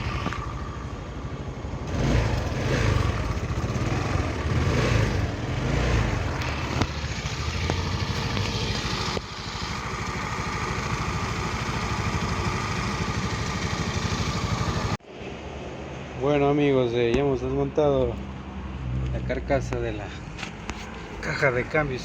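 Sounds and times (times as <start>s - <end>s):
scooter engine revving and idling: 0.0s - 15.0s.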